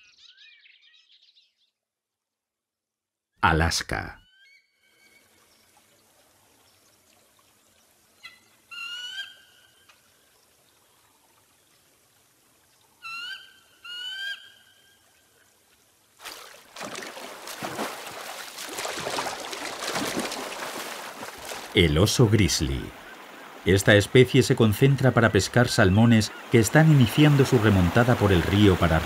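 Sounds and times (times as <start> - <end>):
fast-flowing river rushing: 16.2 - 29.0.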